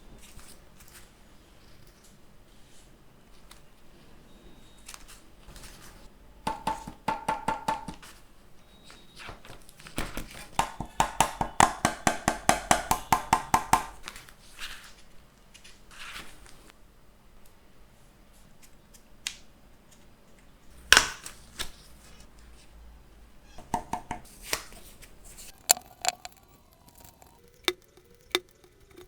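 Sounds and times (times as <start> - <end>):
faint handling rustles: 14.0 - 16.8.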